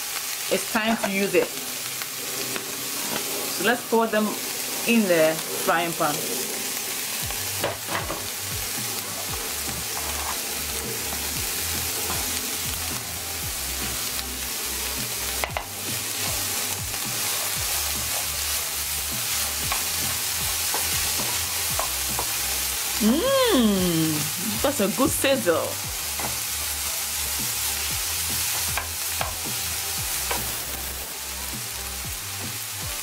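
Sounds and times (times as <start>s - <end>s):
onions sizzling in hot oil: 0.0s - 33.0s
wooden spoon scraping and tapping pan: 9.9s - 10.4s, 19.6s - 22.4s.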